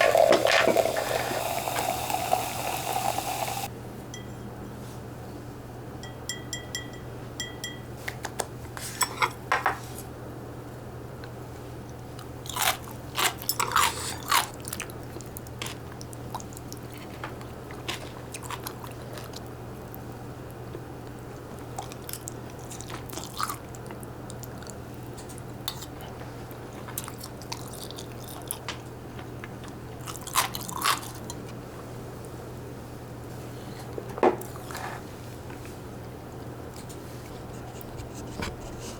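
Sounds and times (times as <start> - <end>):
chewing crisp food: 11.9 - 31.5.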